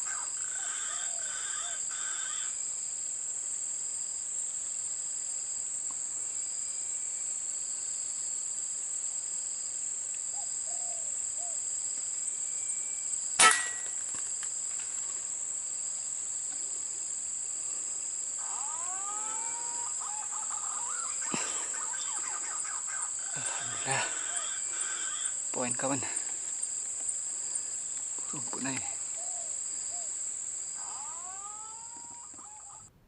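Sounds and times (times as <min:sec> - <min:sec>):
air rifle shot: 0:13.4 - 0:14.0
high-pitched insect drone: 0:17.7 - 0:32.8
bird calls with gliding notes: 0:18.4 - 0:25.3, 0:30.8 - 0:32.9.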